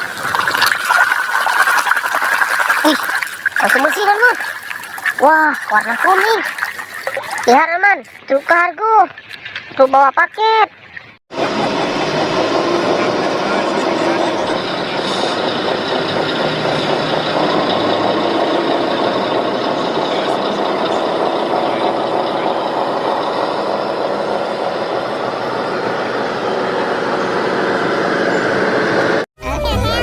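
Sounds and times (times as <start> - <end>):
vehicle engine running: 11.3 - 29.3.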